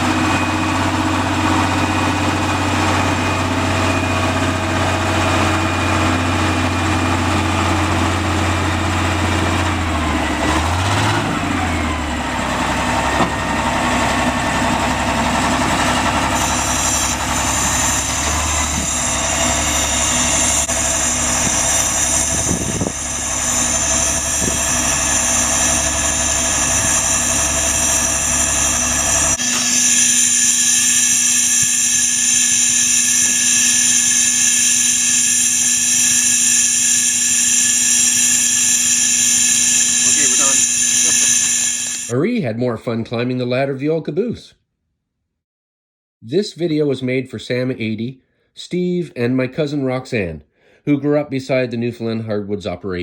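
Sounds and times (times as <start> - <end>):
locomotive engine running: 0.0 - 42.2
high-pitched hum with hiss: 16.4 - 42.1.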